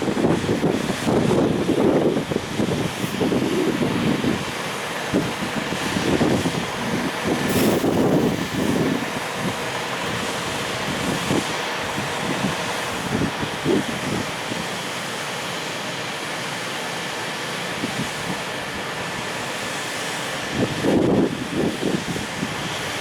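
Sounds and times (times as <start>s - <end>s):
wind buffeting microphone: 0.0s - 14.8s, 20.4s - 23.0s
freight train wagons rolling: 2.8s - 15.1s.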